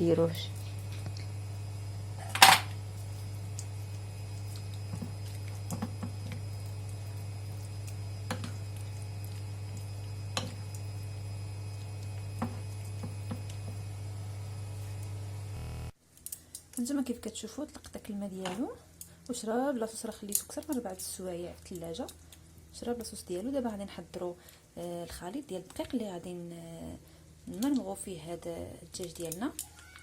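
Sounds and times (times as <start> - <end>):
low electrical hum: 0.0 - 30.0
wet squishes of chicken in sauce: 3.0 - 10.9.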